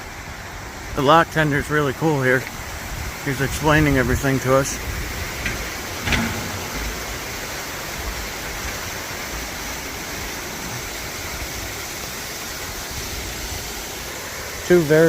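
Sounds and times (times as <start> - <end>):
water rushing into lock: 0.0 - 15.0
low rumbles: 2.6 - 11.6.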